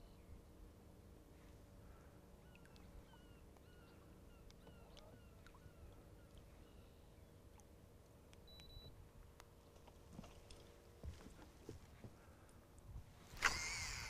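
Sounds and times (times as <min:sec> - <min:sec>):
faint bird calls: 0:01.8 - 0:07.4.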